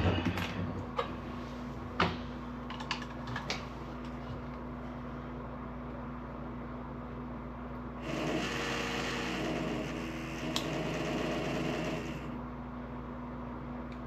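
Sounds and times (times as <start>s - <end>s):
low steady hum: 0.0s - 14.0s
cordless power drill running: 8.0s - 12.4s.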